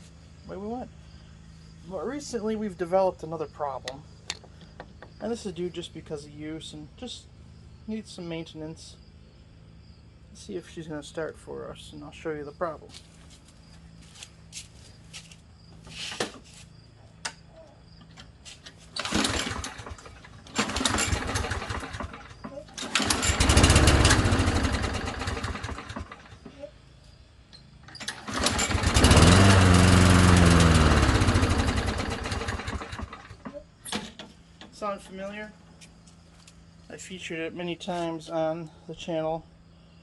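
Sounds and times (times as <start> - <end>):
lawn mower engine starting: 18.6 - 26.6, 27.7 - 35.2.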